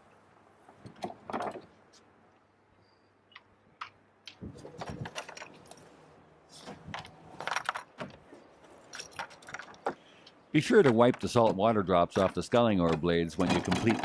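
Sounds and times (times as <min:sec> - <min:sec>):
rattling and rubbing: 0:13.4 - 0:14.0.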